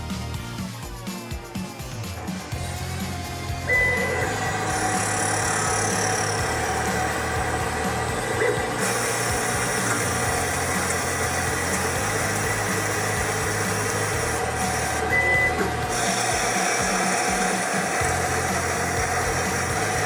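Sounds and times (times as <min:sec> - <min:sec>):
lathe motor whine and hum: 0:02.2 - 0:20.0
short high tone: 0:03.6 - 0:07.0.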